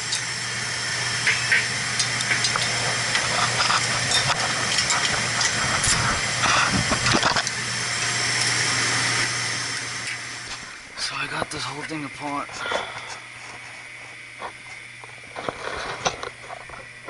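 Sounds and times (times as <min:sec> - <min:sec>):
low hum and hiss: 0:00.0 - 0:17.0
metal tools clinking and knocking: 0:02.0 - 0:06.0.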